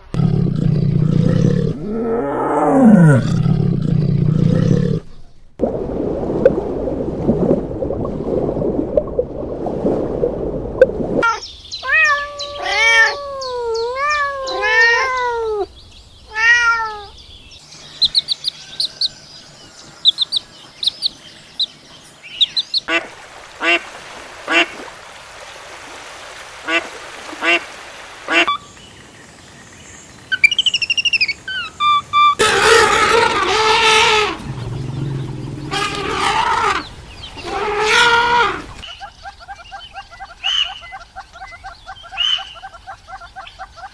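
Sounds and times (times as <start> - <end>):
animal calls: 11.2 - 15.7, 30.3 - 43.9.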